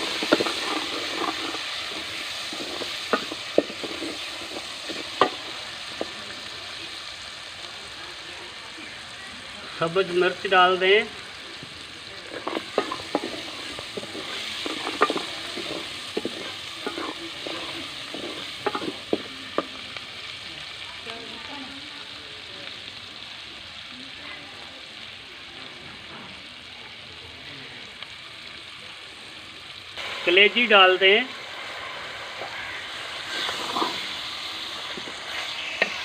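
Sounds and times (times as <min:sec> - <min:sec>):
utensil scraping a pan: 0:00.0 - 0:06.2, 0:12.2 - 0:19.7, 0:32.4 - 0:36.0
spice paste sizzling in hot fat: 0:00.0 - 0:36.0.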